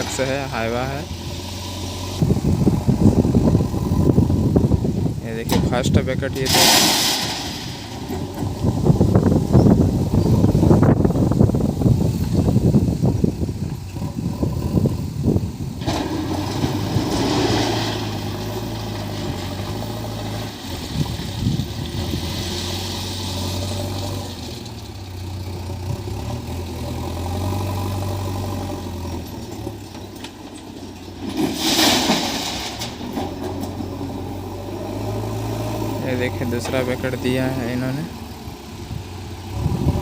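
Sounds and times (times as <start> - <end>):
diesel engine running: 0.0 - 40.0
ballast stone pouring into truck: 5.6 - 9.5, 15.7 - 23.7, 29.5 - 33.5.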